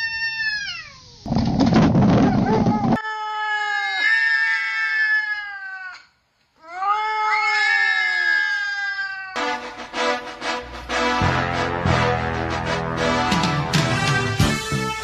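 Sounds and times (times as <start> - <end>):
cat yowling: 0.0 - 1.0, 2.3 - 9.4
music: 9.4 - 15.0.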